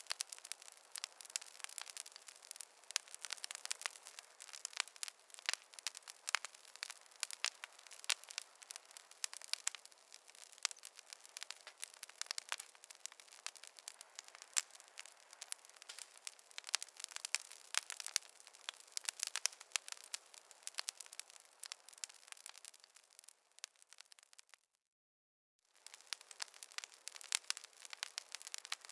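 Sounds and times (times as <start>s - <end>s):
campfire crackling: 0.0s - 24.6s, 25.7s - 28.9s.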